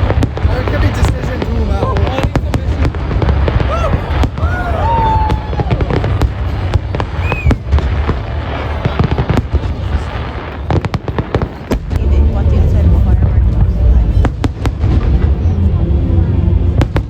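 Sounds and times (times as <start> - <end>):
fireworks bangs and crackles: 0.0 - 17.0
fireworks whistling: 1.9 - 11.7
low rumble: 11.6 - 17.0.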